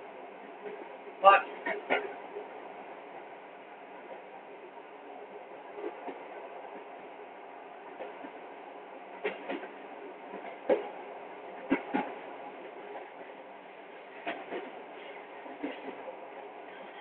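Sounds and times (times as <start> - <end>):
train rumbling on track: 0.0 - 17.0
wheel clacks over rail joints: 1.6 - 2.2, 9.2 - 11.0, 11.6 - 12.2.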